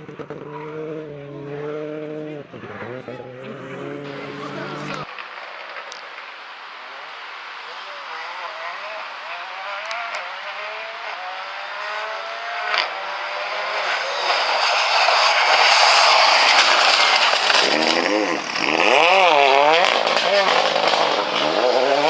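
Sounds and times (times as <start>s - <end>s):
rally car engine revving: 0.0s - 5.1s, 7.6s - 22.0s
tyre noise: 9.7s - 22.0s.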